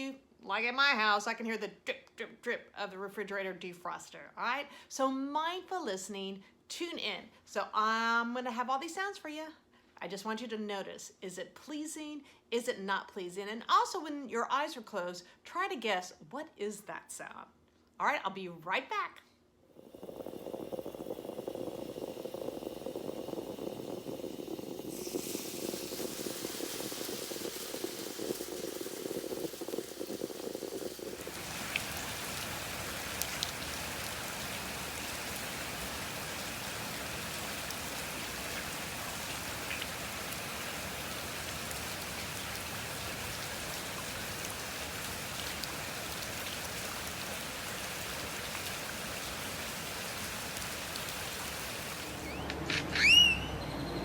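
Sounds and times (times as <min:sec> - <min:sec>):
low steady noise: 0:00.0 - 0:54.0
rain falling: 0:19.8 - 0:52.4.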